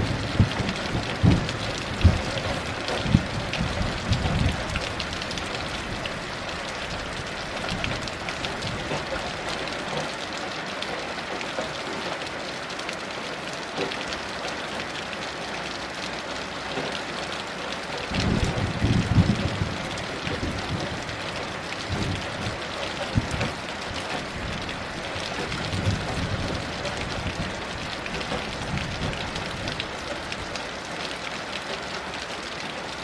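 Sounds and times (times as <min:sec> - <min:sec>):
thunder rumbling: 0:00.0 - 0:09.0, 0:18.1 - 0:30.4
heavy rain hissing and pattering: 0:00.0 - 0:33.0.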